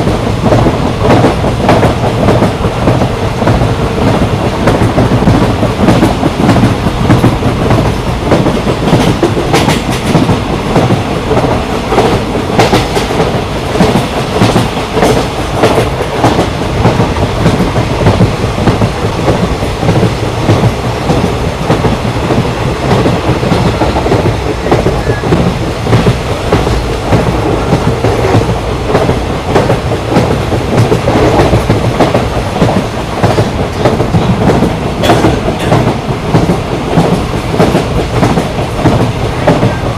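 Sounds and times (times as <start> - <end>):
train rumble: 0.0 - 39.9
wheels clacking over rail joints: 4.5 - 39.9.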